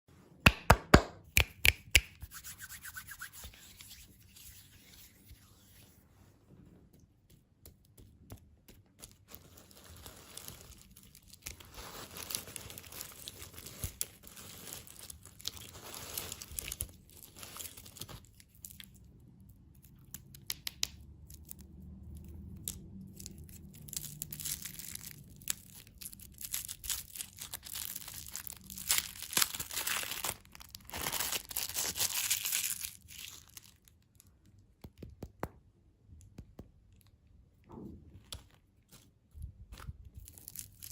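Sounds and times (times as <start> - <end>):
plastic wrappers crinkling: 9.0 - 19.0, 23.1 - 34.3, 38.3 - 40.9.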